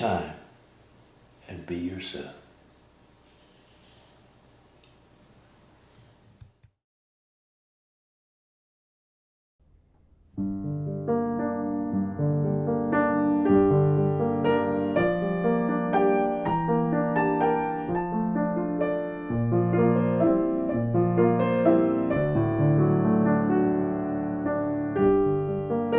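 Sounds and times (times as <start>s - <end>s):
piano music: 10.2s - 25.9s.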